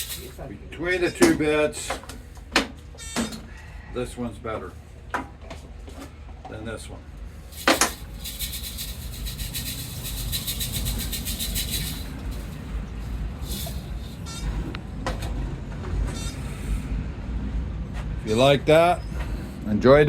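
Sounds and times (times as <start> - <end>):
steady low rumble: 7.3 - 15.8.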